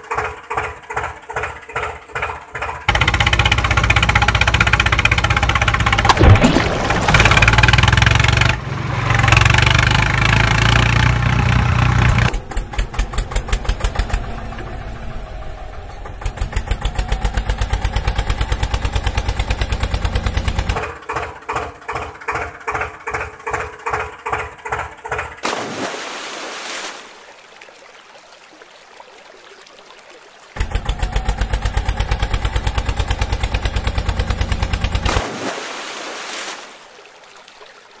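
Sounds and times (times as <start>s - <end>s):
vehicle engine chugging: 0.0s - 6.1s, 7.1s - 25.4s, 30.6s - 35.1s.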